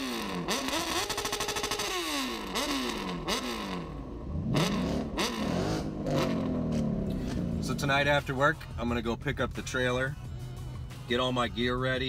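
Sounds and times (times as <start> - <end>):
engine revving through downshifts: 0.0 - 8.3.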